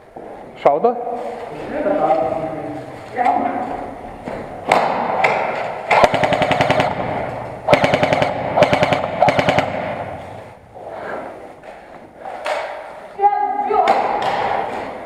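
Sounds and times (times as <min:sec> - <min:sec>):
airsoft guns firing bursts: 0:05.9 - 0:10.2.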